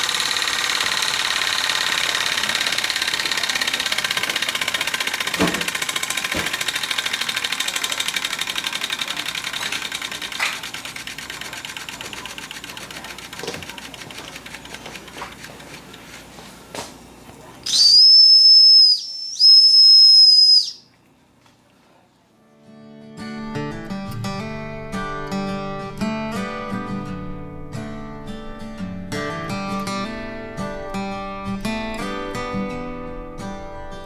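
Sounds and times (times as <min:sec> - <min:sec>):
small steam engine running: 0:00.0 - 0:20.8
steam whistle blasts: 0:17.7 - 0:20.8.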